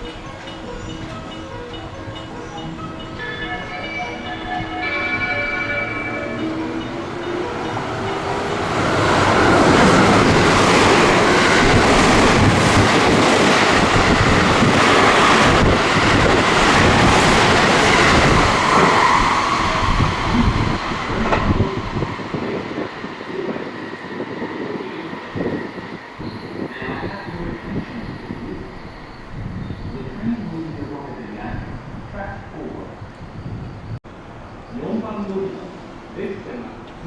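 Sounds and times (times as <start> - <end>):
electric train passing: 0.0 - 34.7
train wheels clacking: 4.2 - 31.3.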